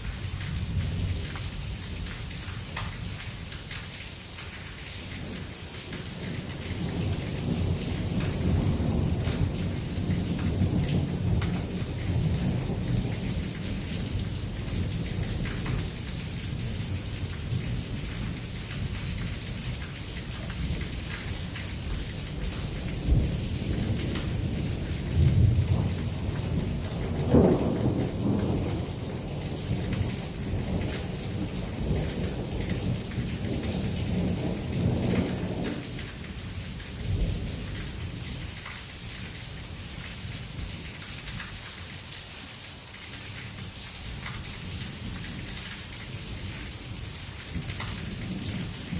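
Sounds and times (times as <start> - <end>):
heavy rain pouring: 0.0 - 48.9
thunder rumbling: 21.9 - 36.0.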